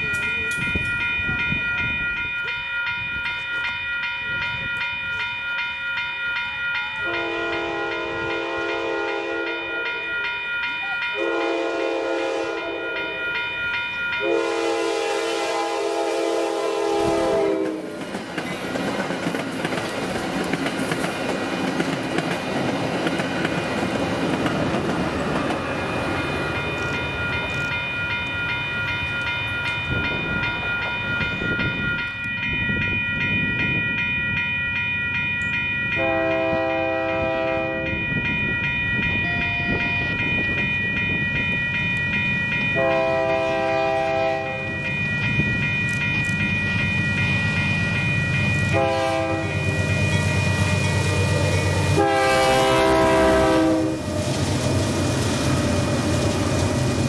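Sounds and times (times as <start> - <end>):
wheels rumbling on rails: 0.0 - 7.1, 17.0 - 57.0
steady high ringing: 0.0 - 57.0
train horn chord blasts: 7.0 - 9.8, 11.2 - 13.0, 14.2 - 18.0, 36.0 - 38.0, 42.8 - 44.8, 48.7 - 49.7, 50.8 - 54.1.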